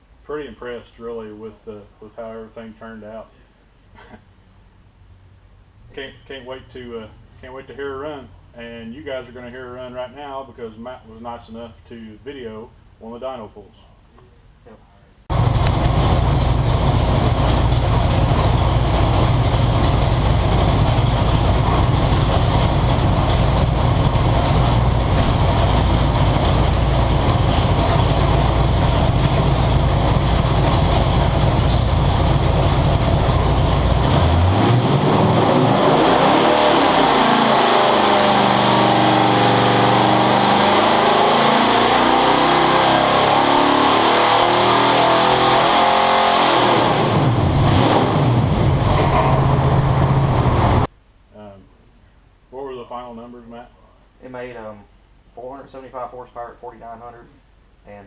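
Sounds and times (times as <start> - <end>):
engine revving on a dyno: 15.3 - 50.9.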